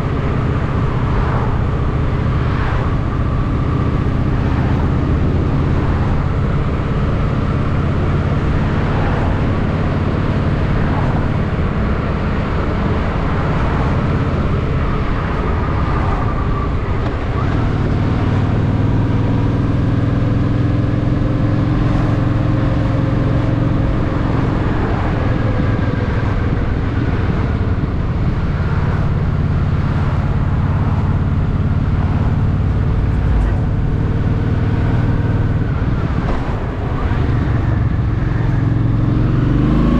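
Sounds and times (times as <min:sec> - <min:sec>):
motorcycle engine running: 0:16.5 - 0:39.9.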